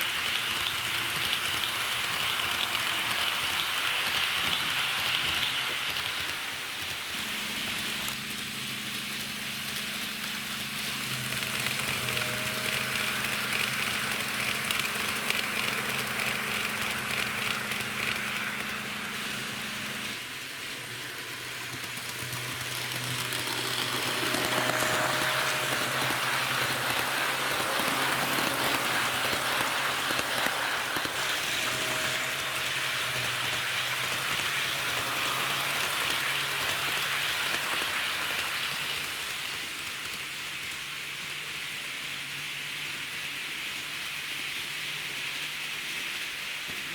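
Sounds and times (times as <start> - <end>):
model train wheels on rails: 0.0 - 46.9
low electric motor hum: 7.1 - 38.1.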